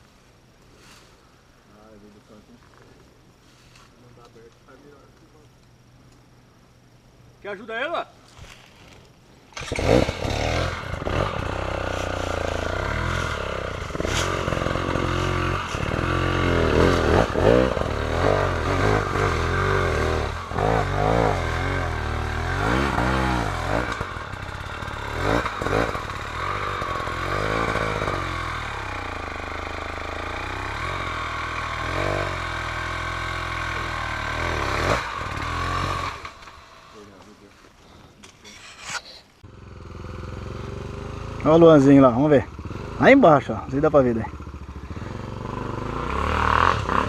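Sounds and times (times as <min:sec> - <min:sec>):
motorcycle engine revving: 0:09.6 - 0:37.4, 0:39.4 - 0:47.0.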